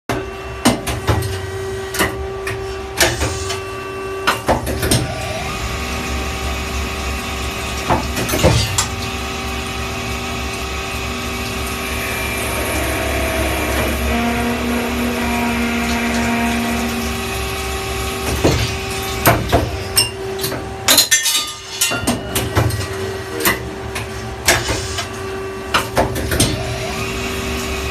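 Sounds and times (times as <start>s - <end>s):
lathe machine hum: 5.1s - 8.2s, 8.9s - 20.8s, 26.6s - 27.9s.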